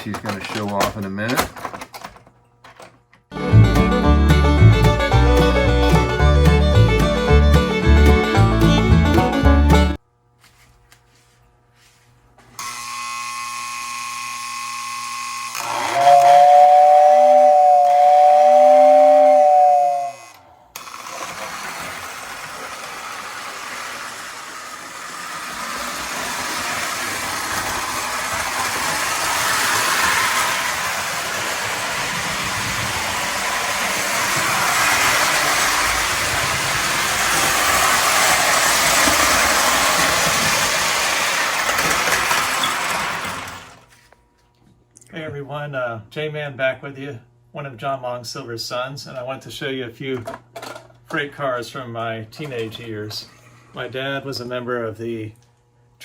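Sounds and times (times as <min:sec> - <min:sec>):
model train rolling and rattling: 0:00.0 - 0:09.8, 0:15.6 - 0:44.0
two-tone train whistle: 0:15.2 - 0:20.4.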